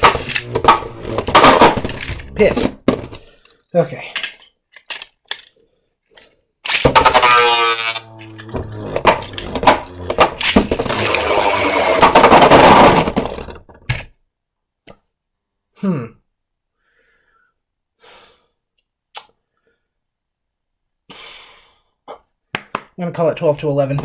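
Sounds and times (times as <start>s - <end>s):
spinning top launcher whir: 0.0s - 3.1s, 6.7s - 13.6s.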